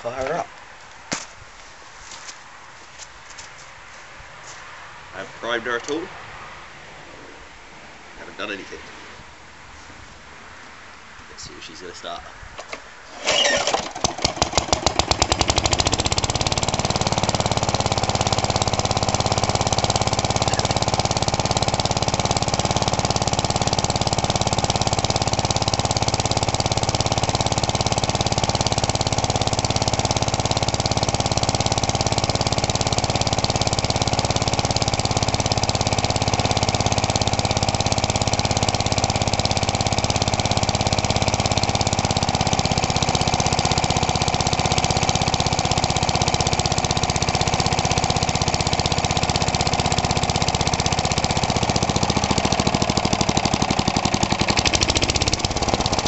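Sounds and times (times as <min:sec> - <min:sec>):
lawn mower engine starting: 0:12.6 - 0:56.0.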